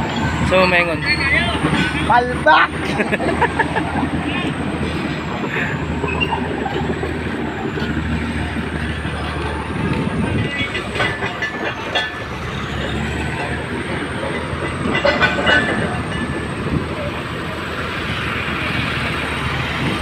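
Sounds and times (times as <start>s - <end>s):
crawler tracks clanking and squealing: 0.0s - 20.0s
diesel engine running: 0.0s - 20.0s.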